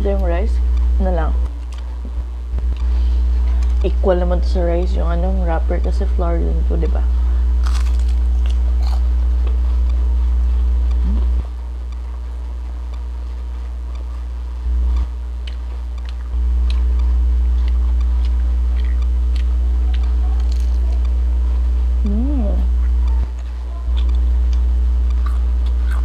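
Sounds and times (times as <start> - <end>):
loud low hum: 0.0 - 26.0
crunchy biting and chewing: 7.6 - 9.7, 14.9 - 21.3, 22.7 - 26.0
mouth and teeth clicks: 14.9 - 21.2, 22.8 - 26.0.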